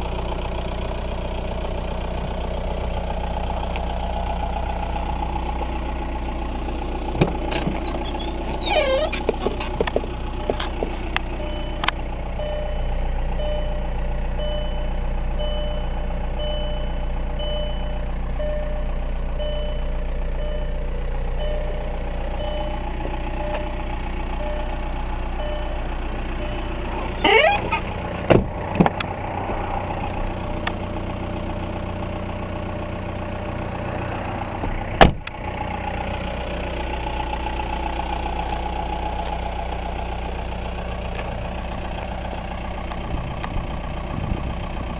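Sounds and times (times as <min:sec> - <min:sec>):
diesel engine idling: 0:00.0 - 0:44.9
faint repeating beep: 0:11.4 - 0:11.8, 0:12.4 - 0:20.8, 0:21.4 - 0:22.8, 0:25.4 - 0:25.8.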